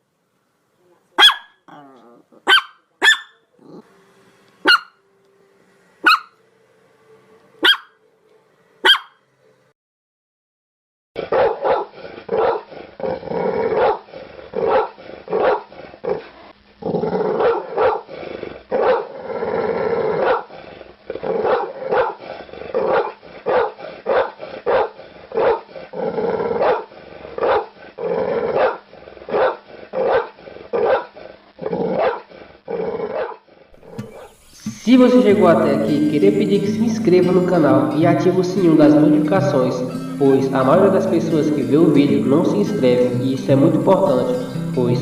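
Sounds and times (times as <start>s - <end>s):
dog barking: 1.2s - 3.4s, 4.6s - 5.0s, 6.0s - 6.4s, 7.6s - 8.0s, 8.8s - 9.2s, 11.3s - 12.7s, 13.8s - 14.0s, 14.6s - 15.7s, 17.4s - 18.0s, 18.8s - 19.1s, 20.2s - 20.5s, 21.4s - 22.2s, 22.8s - 25.7s, 26.6s - 27.7s, 28.6s - 31.1s, 32.0s - 32.3s, 33.2s - 33.4s.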